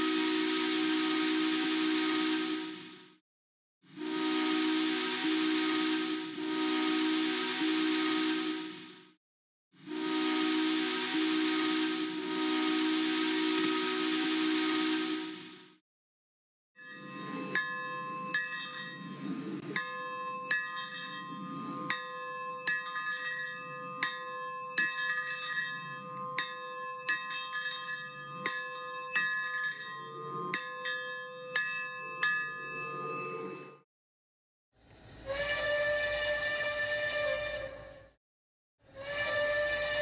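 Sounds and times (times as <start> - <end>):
locomotive bell ringing: 16.8 - 33.8.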